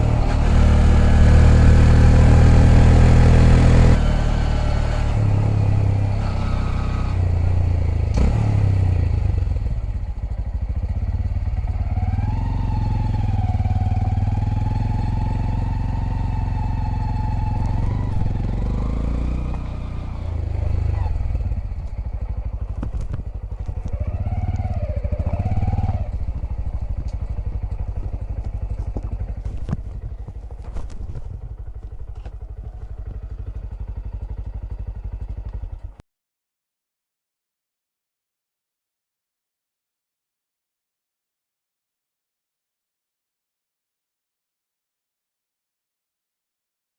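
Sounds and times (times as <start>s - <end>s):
motorcycle engine revving: 0.0s - 36.0s
steady low rumble: 25.9s - 36.0s.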